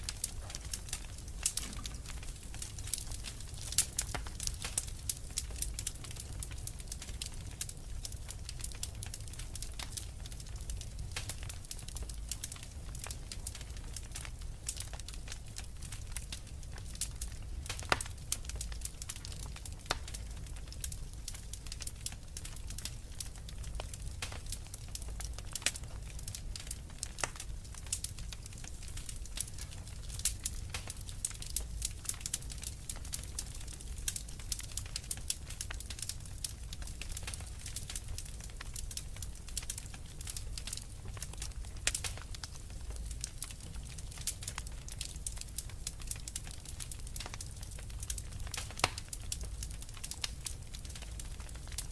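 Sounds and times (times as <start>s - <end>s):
wood fire crackling: 0.0s - 51.9s
loud fire pop: 1.4s - 2.4s.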